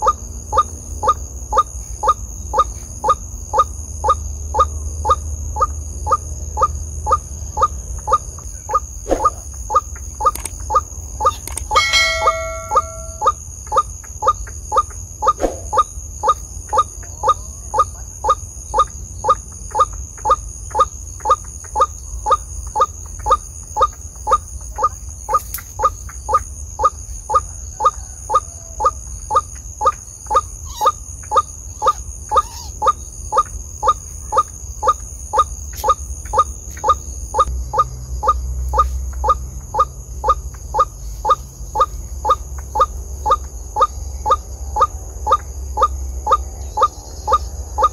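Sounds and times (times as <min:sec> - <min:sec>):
waterhen calling: 0:06.1 - 0:13.4.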